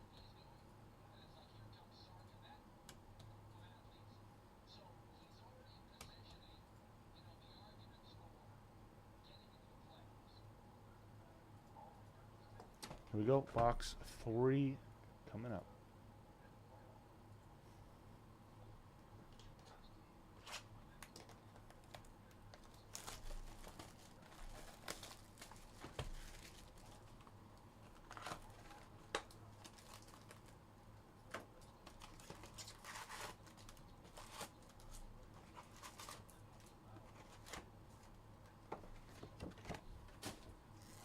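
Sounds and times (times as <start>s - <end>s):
card pack wrappers tearing: 27.9s - 30.5s, 31.9s - 36.4s.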